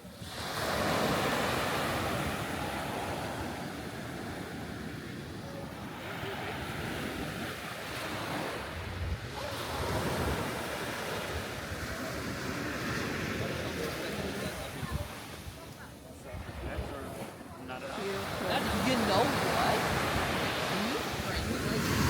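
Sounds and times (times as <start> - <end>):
ocean surf on a beach: 0.0 - 22.0
wind buffeting the microphone: 0.2 - 17.5.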